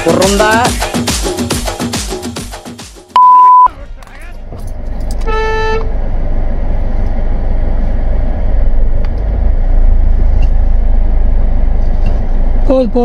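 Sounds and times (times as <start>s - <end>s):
car engine idling: 3.7s - 13.0s.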